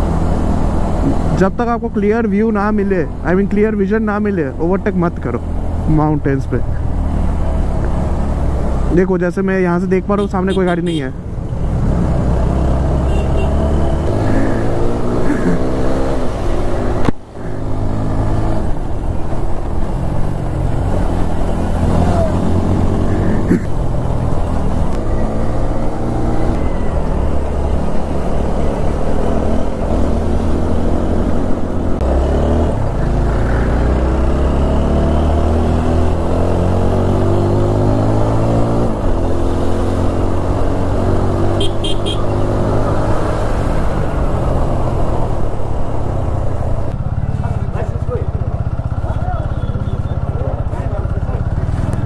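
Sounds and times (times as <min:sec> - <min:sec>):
motorcycle engine revving: 0:11.6 - 0:52.0.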